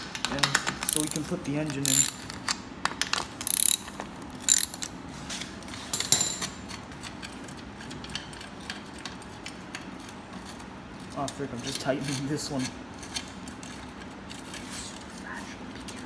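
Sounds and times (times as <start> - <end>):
metal tools clanking: 0.9 - 2.4, 3.4 - 4.9, 6.0 - 6.7
ratchet wrench clicking: 0.9 - 2.4, 3.4 - 4.9.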